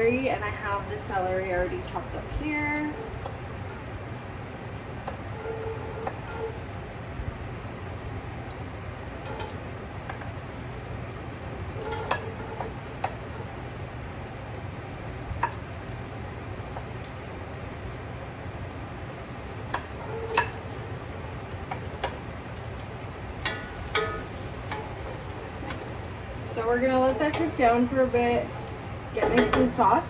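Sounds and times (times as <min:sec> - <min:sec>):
celery sizzling in a pan: 0:00.0 - 0:03.6, 0:05.1 - 0:30.0
utensil clicking against pan: 0:11.7 - 0:13.3, 0:19.3 - 0:20.8.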